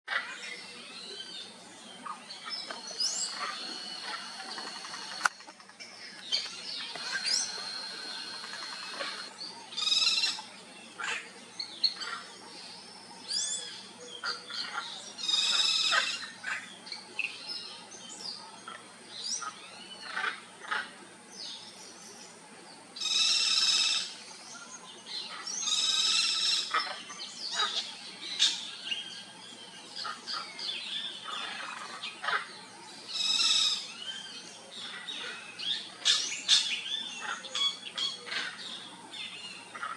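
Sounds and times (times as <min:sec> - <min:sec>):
birds chirping and whistling: 0:02.4 - 0:05.3, 0:06.2 - 0:10.4, 0:33.1 - 0:34.5
macaws giving harsh calls: 0:02.7 - 0:05.3, 0:06.9 - 0:10.4, 0:25.5 - 0:27.8, 0:33.1 - 0:33.9.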